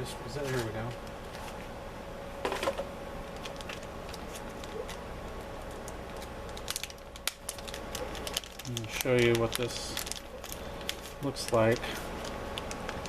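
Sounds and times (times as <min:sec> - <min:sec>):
faint steady hum: 0:00.0 - 0:13.0
small wires clicking and tapping: 0:05.6 - 0:13.0.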